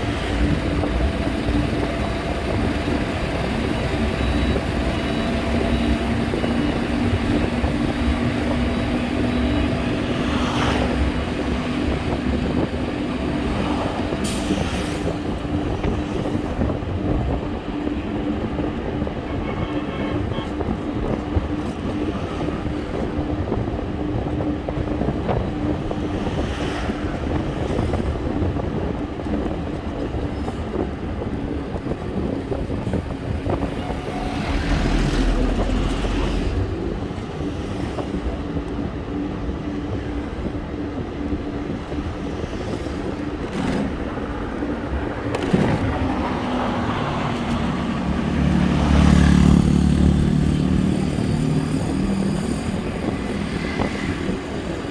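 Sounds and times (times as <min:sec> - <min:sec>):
traffic rumble: 0:00.0 - 0:54.9
vehicle engine humming: 0:00.0 - 0:54.9.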